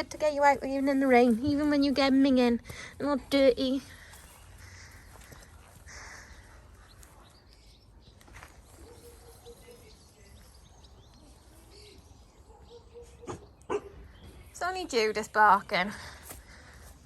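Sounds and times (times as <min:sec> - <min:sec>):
dog barking: 0:08.8 - 0:09.9, 0:12.4 - 0:14.0.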